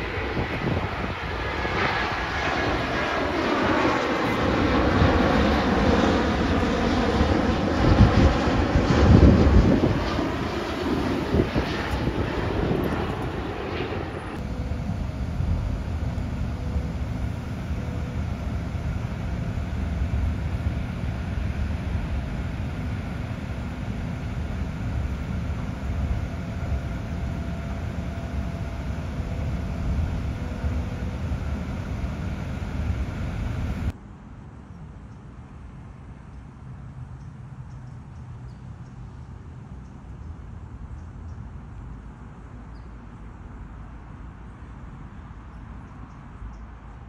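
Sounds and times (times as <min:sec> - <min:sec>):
airliner passing overhead: 0:00.0 - 0:34.0
train rumble from on board: 0:07.2 - 0:33.9.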